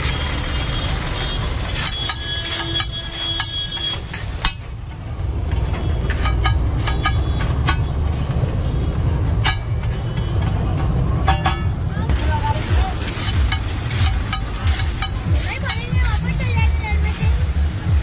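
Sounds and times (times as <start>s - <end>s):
metal spatula clanging on pan: 1.2s - 8.2s, 9.4s - 11.8s, 13.0s - 16.2s.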